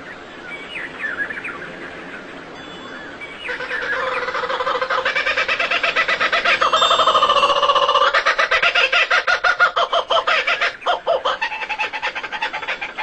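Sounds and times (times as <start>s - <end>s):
fast pulsing bird chatter: 3.5s - 12.5s
birds chirping and whistling: 5.6s - 9.0s.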